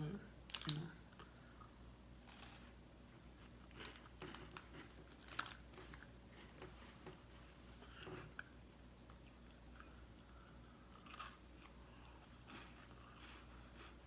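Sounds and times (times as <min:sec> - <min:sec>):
biscuit crunching: 0:02.2 - 0:02.8, 0:03.4 - 0:06.7, 0:10.2 - 0:14.0.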